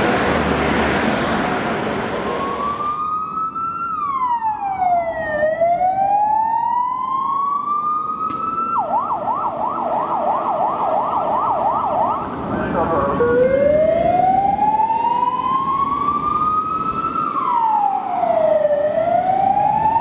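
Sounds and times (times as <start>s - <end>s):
tram rumbling: 0.0s - 3.0s
emergency vehicle siren: 0.0s - 20.0s.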